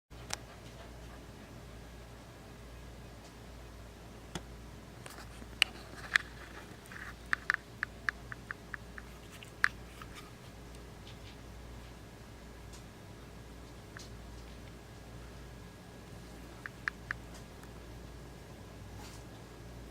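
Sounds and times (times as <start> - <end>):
faint steady hum: 0.1 - 19.9
plastic fan clicks and taps: 7.3 - 10.1.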